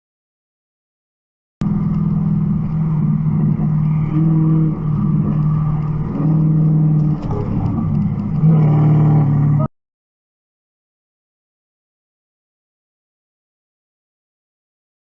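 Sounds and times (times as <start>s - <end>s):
car engine running: 1.6s - 9.7s.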